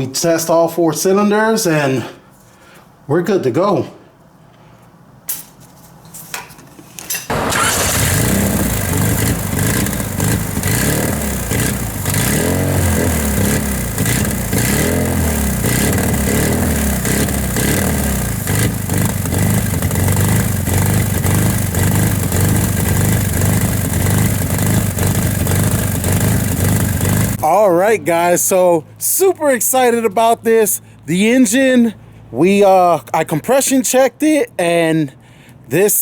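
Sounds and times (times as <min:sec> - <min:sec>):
car engine starting and revving: 0:07.3 - 0:27.4.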